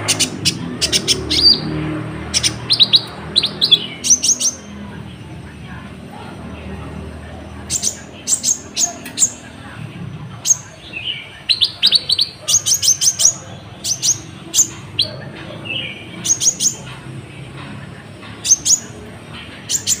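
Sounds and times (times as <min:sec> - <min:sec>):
bird singing high chirps: 0:00.0 - 0:04.8, 0:07.6 - 0:09.5, 0:10.4 - 0:16.9, 0:18.4 - 0:20.0.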